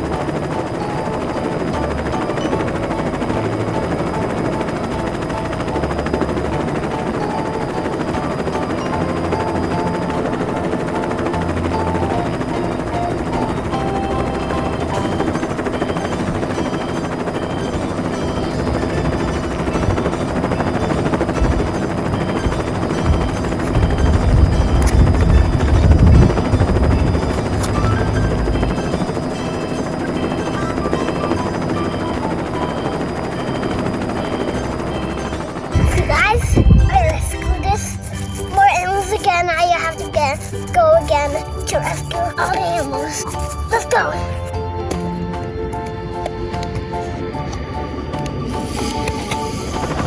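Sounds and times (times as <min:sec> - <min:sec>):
faint tinkly tune: 0:00.0 - 0:35.9
electronic rotor chopping: 0:00.0 - 0:44.4.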